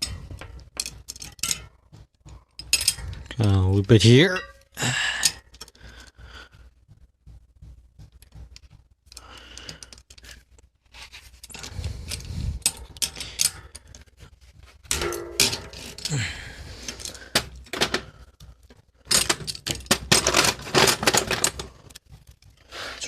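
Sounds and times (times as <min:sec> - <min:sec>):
metal clinking and scraping: 0:00.0 - 0:06.1, 0:08.2 - 0:23.0.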